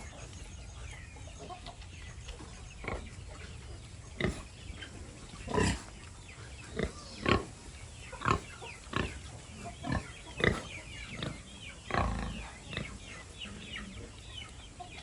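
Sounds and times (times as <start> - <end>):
pigs grunting: 2.7 - 14.2.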